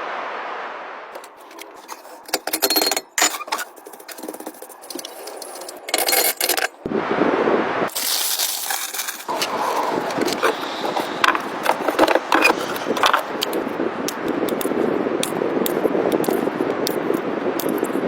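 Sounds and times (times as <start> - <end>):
scraping and rustling: 1.2 - 6.8, 7.9 - 13.7.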